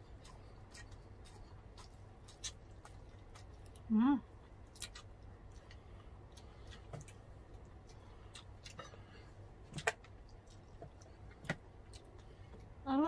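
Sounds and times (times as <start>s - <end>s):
mouth clicks and smacks chewing: 0.0s - 3.9s, 4.6s - 9.0s.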